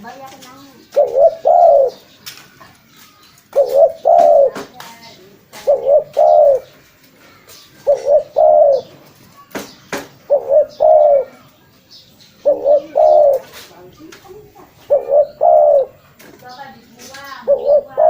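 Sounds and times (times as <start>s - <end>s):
dove cooing: 0.8s - 2.1s, 3.5s - 9.0s, 10.2s - 11.5s, 12.4s - 16.2s, 17.1s - 18.0s.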